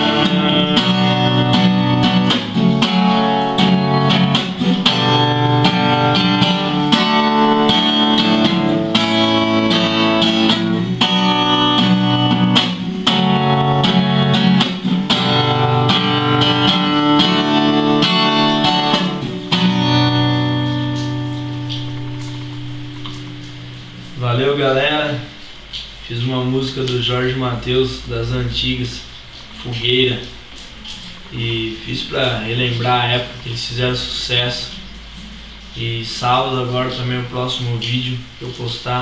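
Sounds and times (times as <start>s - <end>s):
strummed and plucked guitar: 0.0s - 26.0s.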